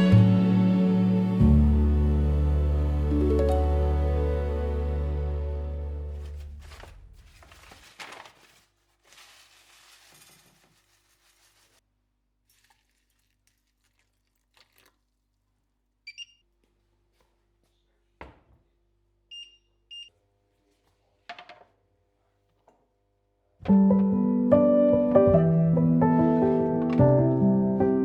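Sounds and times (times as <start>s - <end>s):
rustling: 6.0s - 11.8s.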